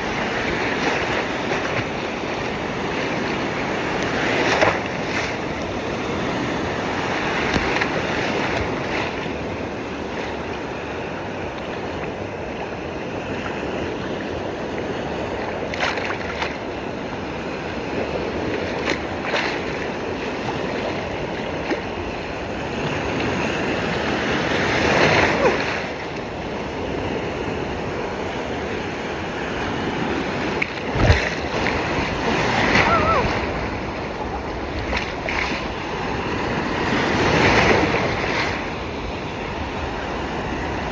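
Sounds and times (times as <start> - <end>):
surf rushing: 27.7 - 40.9
wave crashing: 30.3 - 38.7.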